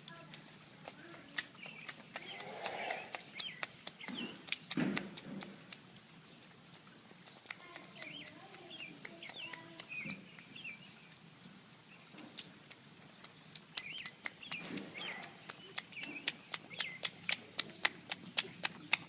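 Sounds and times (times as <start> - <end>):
bird chirping: 1.5 - 4.8, 7.2 - 11.2, 13.2 - 17.2.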